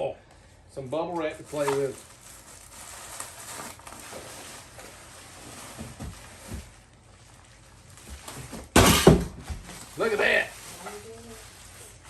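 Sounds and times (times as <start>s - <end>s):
faint packaging rustling: 1.1s - 8.8s, 9.5s - 12.0s.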